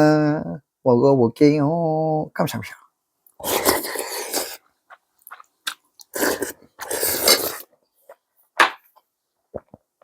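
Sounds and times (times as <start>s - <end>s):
loud slurps: 3.4s - 4.6s, 6.0s - 7.7s.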